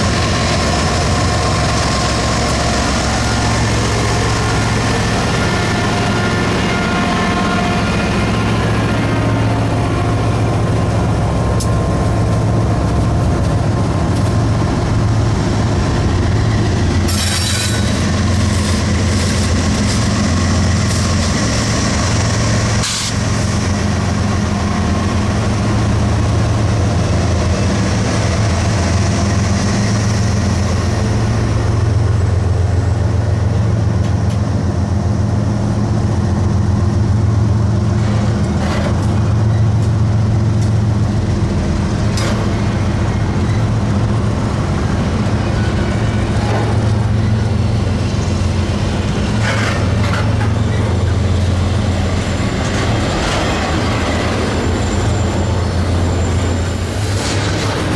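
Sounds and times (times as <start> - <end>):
train wheels rumbling on rails: 0.0 - 57.9
high hiss or squeal: 47.0 - 57.2.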